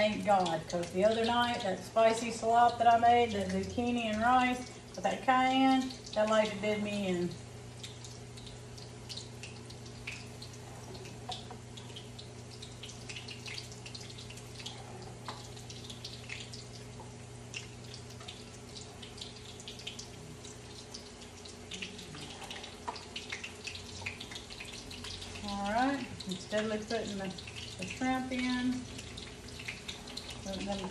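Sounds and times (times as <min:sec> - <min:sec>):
oil crackling and popping: 0:00.0 - 0:06.6, 0:07.2 - 0:30.9
shrimp sizzling in grease: 0:07.5 - 0:30.9.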